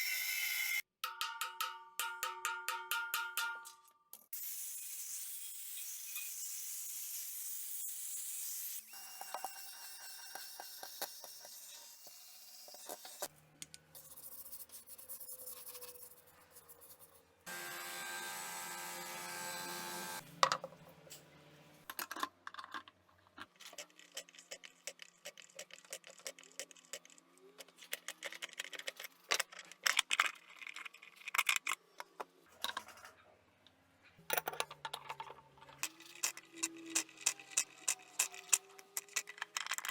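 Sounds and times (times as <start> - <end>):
tool clicks taps and knocks: 1.0 - 3.8.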